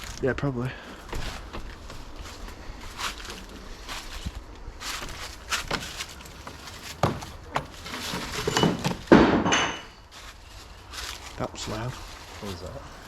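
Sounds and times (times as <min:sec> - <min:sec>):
scuffs: 0:00.8 - 0:08.6
locked door rattling: 0:05.0 - 0:09.9.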